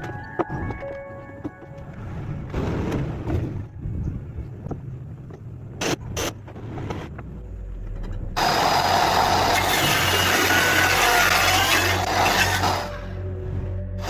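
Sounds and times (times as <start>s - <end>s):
saw blade cutting wood: 8.4s - 13.0s
table saw motor hum: 8.4s - 13.0s.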